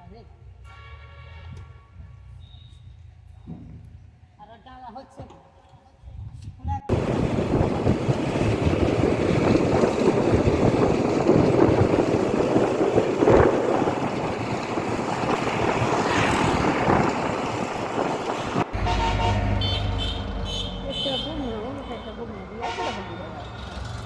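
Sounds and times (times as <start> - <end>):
wind buffeting microphone: 6.0 - 18.9
tractor engine running: 6.9 - 21.5.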